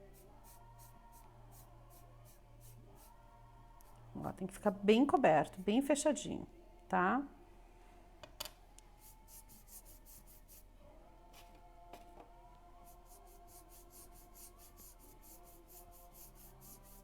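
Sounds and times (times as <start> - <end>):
paintbrush swishing: 9.0 - 10.6, 12.8 - 17.0.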